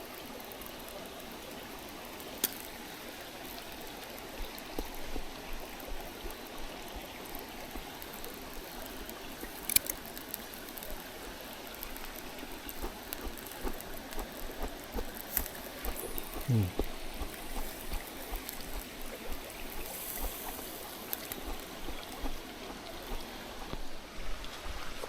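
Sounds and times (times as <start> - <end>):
stream flowing: 0.0 - 25.0
sharp clicks: 9.6 - 10.0.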